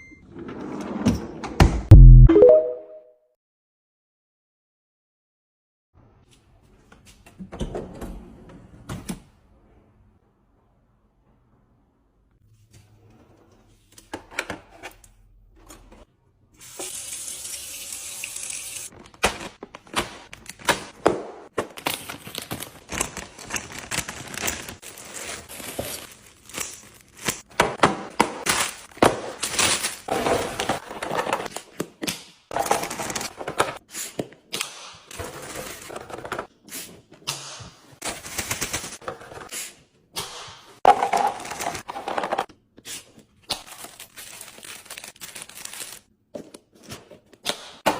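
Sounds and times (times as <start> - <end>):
packaging rustling: 21.6 - 27.5, 43.7 - 46.1.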